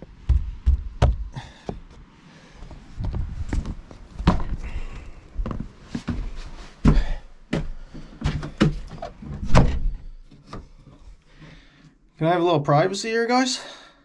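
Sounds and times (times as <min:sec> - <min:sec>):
irregular knocks and thumps: 0:00.0 - 0:02.1, 0:03.0 - 0:04.8.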